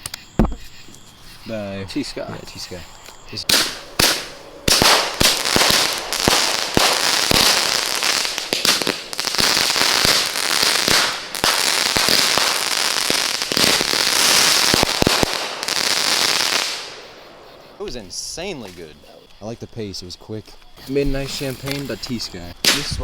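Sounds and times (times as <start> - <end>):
fireworks crackling: 0.0 - 19.3, 20.8 - 23.0
fireworks banging: 1.9 - 19.1, 20.8 - 23.0.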